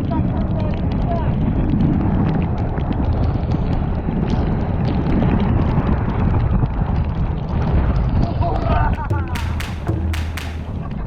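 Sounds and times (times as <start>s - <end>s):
scattered sharp ticks: 9.0s - 10.9s.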